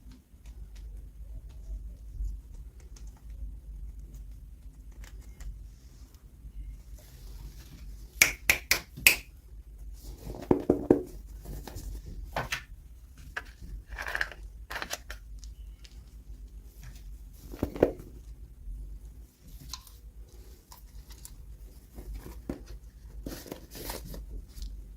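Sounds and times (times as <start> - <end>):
packaging rustling and crinkling: 19.5 - 24.9.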